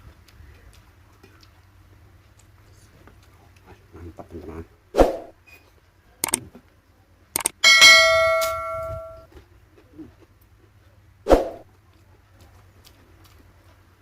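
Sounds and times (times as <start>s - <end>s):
light clicks: 7.4s - 7.6s
tableware ringing: 7.6s - 9.2s.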